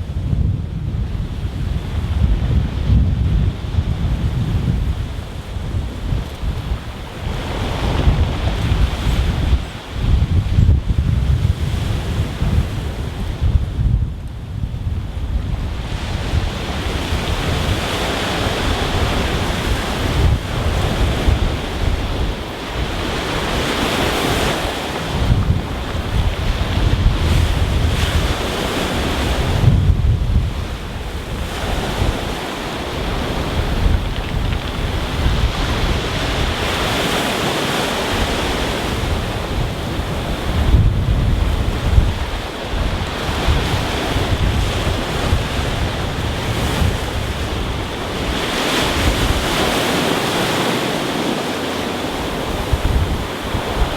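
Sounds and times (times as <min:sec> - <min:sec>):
wind buffeting microphone: 0:00.0 - 0:53.9
waves washing over pebbles: 0:15.6 - 0:29.8, 0:30.4 - 0:53.9.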